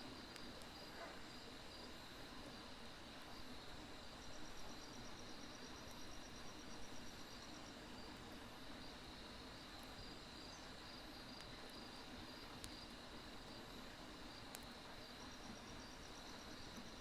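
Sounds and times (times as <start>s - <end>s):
crickets chirping: 0.2s - 17.0s
firewood crackling: 9.6s - 14.9s.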